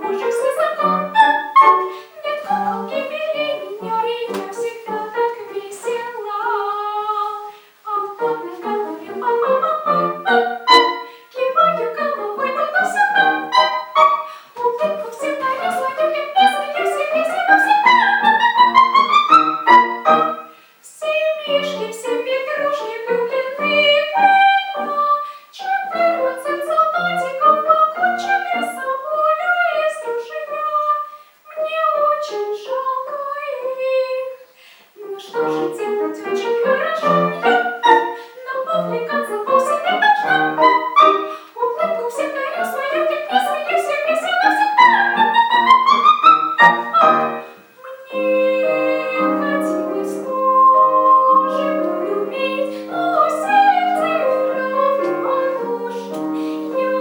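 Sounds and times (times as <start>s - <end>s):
piano accompaniment: 0.0s - 7.4s, 8.0s - 20.5s, 35.2s - 57.0s
girl singing classical song: 0.0s - 57.0s.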